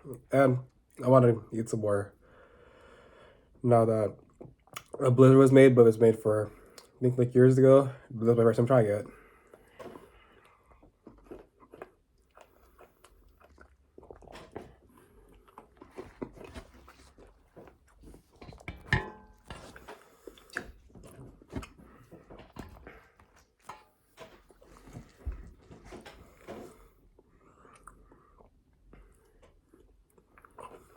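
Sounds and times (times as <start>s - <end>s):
person chewing and crunching cookie: 4.2s - 5.0s, 9.1s - 30.9s.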